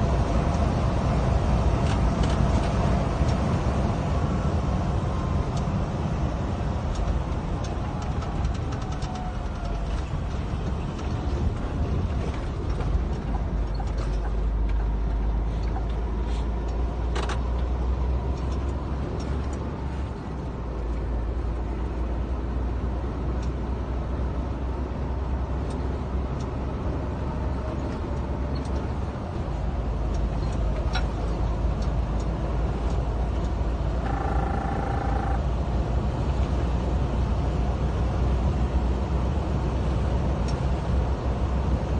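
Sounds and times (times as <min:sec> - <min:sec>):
diesel truck engine droning: 0:00.0 - 0:41.9
road noise: 0:00.0 - 0:41.9
brief pitched tone: 0:34.0 - 0:35.4.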